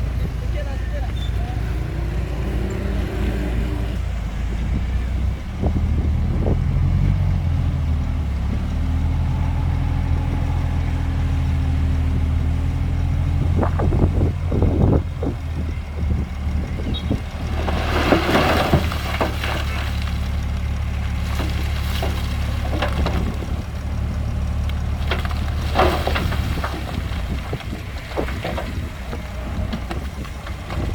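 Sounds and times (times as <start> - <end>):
heavy diesel engine running: 0.0 - 30.9
metal knocks and clanks: 16.7 - 20.4, 21.1 - 23.7, 24.9 - 30.9.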